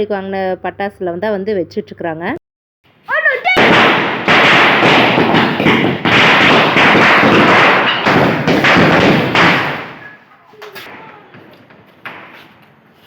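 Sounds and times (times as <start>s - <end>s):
firecrackers going off: 3.4s - 10.2s.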